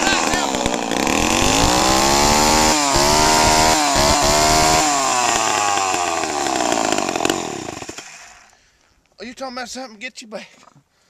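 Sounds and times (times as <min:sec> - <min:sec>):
chainsaw running at full throttle: 0:00.0 - 0:08.5.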